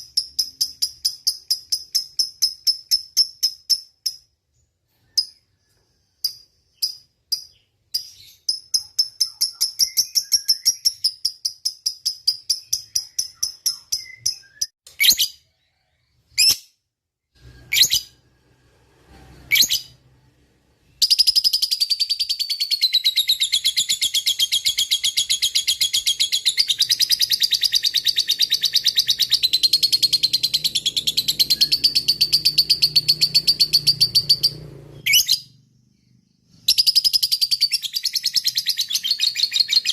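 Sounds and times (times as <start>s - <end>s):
bird chirping: 0.0s - 18.3s, 20.8s - 39.9s
bird rapid chattering trill: 6.7s - 14.6s, 21.0s - 34.5s.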